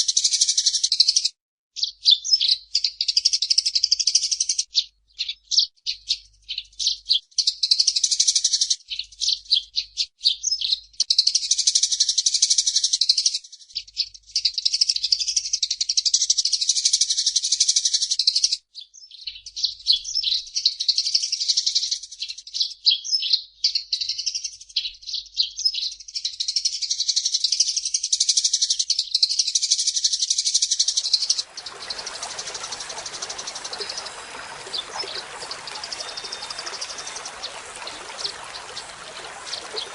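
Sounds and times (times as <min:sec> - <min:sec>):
sparrows chirping: 0:30.8 - 0:39.9.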